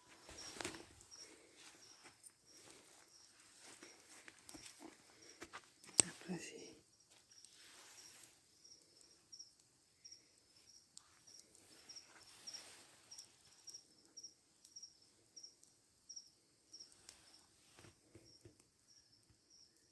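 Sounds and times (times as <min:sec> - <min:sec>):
cricket chirping: 0:00.0 - 0:19.9.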